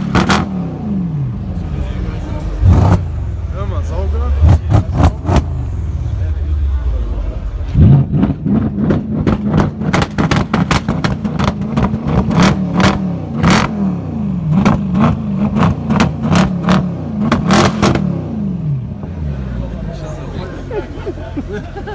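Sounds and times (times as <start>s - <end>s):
car engine revving: 0.0s - 20.7s
exhaust crackles and pops: 7.6s - 13.7s.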